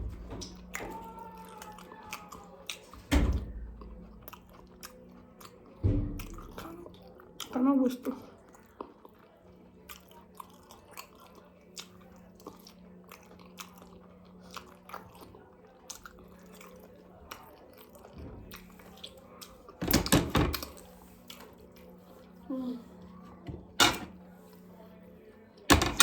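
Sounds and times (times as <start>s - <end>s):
person chewing food: 0.4s - 3.1s, 3.8s - 19.8s.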